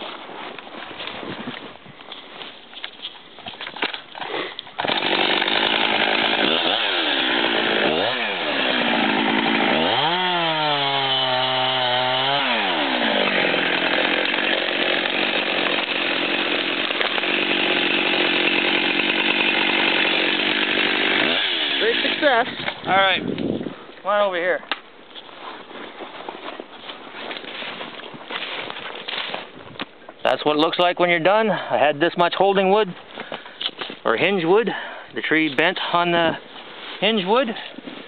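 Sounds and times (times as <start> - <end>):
chainsaw revving and cutting: 4.8 - 22.5.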